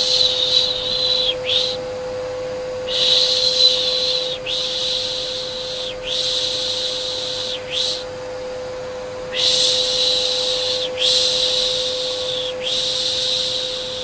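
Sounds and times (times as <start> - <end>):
vacuum cleaner hum: 0.0 - 14.0
person shushing: 2.9 - 8.1, 9.3 - 14.0.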